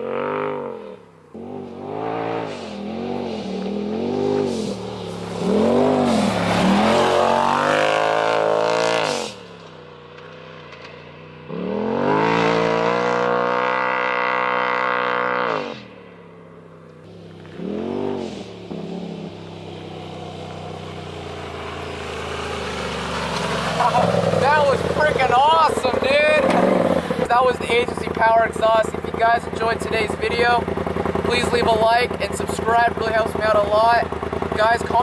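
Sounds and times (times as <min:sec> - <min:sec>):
engine revving hard: 0:00.0 - 0:09.5, 0:11.5 - 0:15.9, 0:17.5 - 0:19.5, 0:20.9 - 0:27.3.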